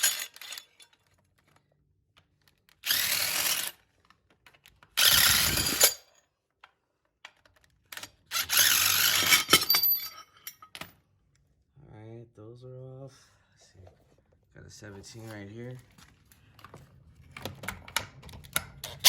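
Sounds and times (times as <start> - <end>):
power tool bursts: 5.0 - 6.0.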